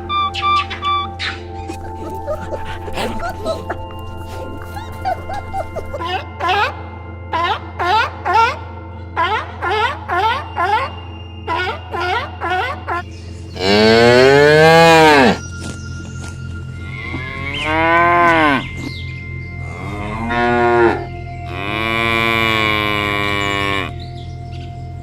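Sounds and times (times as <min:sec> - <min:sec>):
cows mooing: 0:13.6 - 0:15.4, 0:16.9 - 0:18.9, 0:19.6 - 0:24.0.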